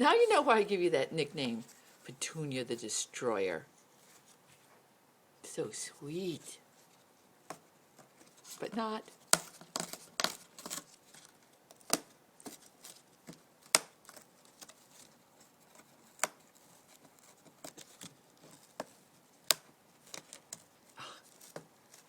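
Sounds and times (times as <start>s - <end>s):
beak tearing cardboard: 8.3s - 22.0s.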